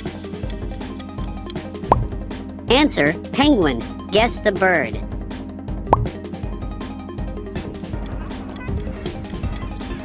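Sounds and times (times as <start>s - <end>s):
quiz background music with beat: 0.1s - 2.6s, 5.8s - 6.2s
rising bloop sound effect: 1.9s - 2.2s, 5.9s - 6.1s.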